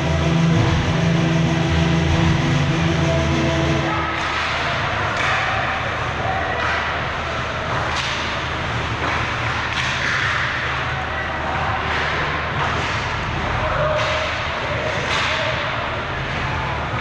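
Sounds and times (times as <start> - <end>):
hockey sticks and puck cracking: 4.0 - 17.0.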